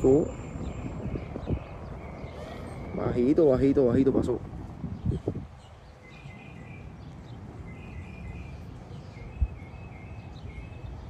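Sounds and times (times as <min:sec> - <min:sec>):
songbird chirping: 0:00.0 - 0:03.9, 0:05.0 - 0:11.0
low outdoor rumble: 0:00.0 - 0:09.7.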